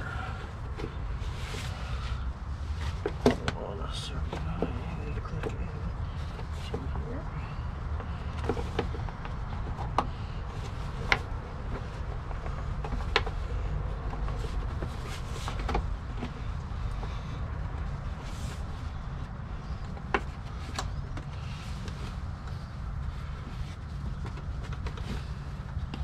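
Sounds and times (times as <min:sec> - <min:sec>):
low background rumble: 0:00.0 - 0:26.0.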